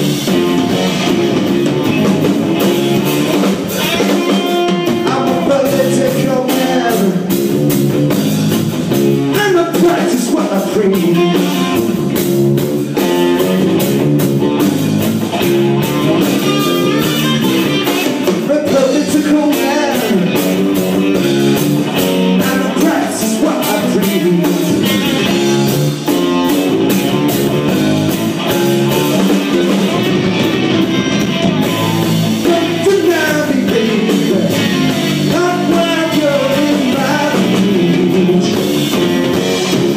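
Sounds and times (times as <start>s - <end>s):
drums: 0.0s - 39.9s
electric guitar: 0.0s - 39.9s
person singing: 3.8s - 7.3s, 9.3s - 11.8s, 16.6s - 20.6s, 22.4s - 25.4s, 31.5s - 39.4s.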